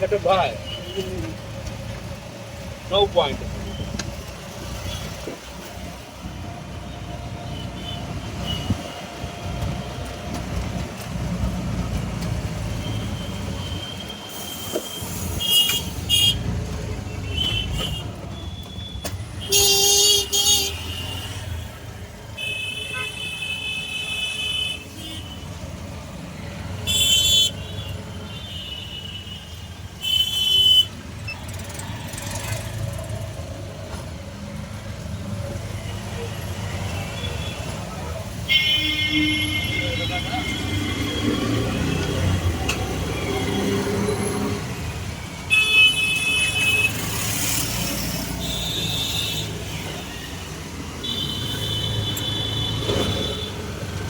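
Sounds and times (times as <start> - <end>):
street traffic rumbling: 0.0 - 54.0
vehicle horns honking: 19.4 - 21.6, 26.8 - 31.0, 38.4 - 42.0.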